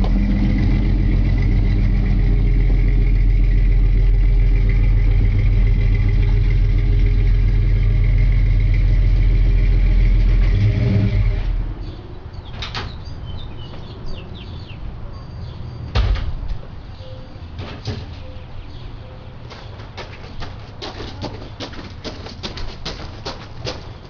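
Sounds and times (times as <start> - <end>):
car engine idling: 0.0 - 11.5.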